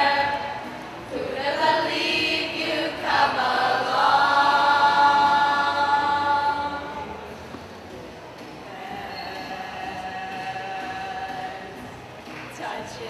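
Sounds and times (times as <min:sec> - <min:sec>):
youth choir singing a chord: 0:00.0 - 0:07.2.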